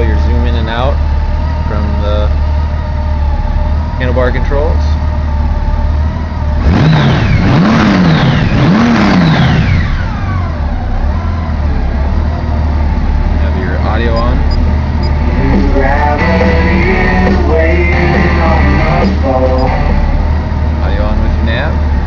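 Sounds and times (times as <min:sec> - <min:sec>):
motorcycle engine idling: 0:00.0 - 0:06.6, 0:09.4 - 0:16.1
engine revving: 0:00.0 - 0:22.0
rock music with singing: 0:14.3 - 0:20.5.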